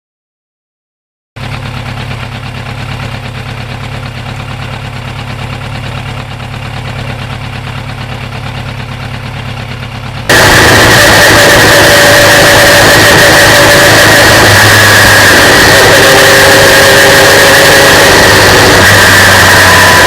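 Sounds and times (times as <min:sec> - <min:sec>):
engine idling: 0:01.4 - 0:20.0
loud harsh engine noise: 0:01.4 - 0:20.0.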